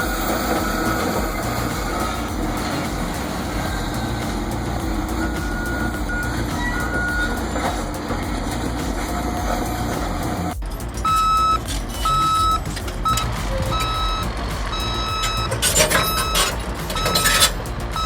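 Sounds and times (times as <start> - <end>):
bulldozer diesel engine rumbling: 0.0 - 18.0
reversing alarm beeping: 5.0 - 7.8, 11.0 - 18.0.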